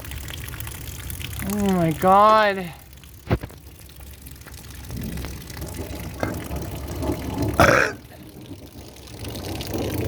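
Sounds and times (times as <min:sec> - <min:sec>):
thunder rumbling: 0:04.2 - 0:10.0.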